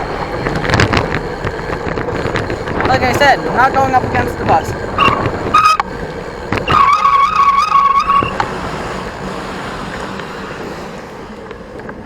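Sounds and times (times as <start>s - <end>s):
bicycle brake squealing: 0.0s - 9.0s
rushing ride noise: 0.0s - 12.0s.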